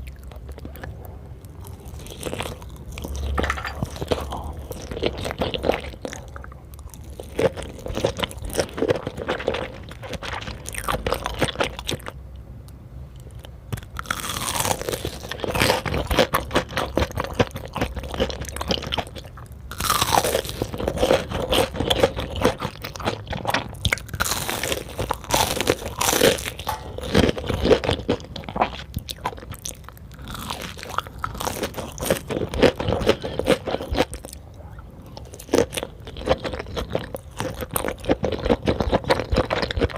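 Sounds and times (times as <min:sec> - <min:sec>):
wet chewing and smacking: 0:00.0 - 0:12.2, 0:13.2 - 0:39.9.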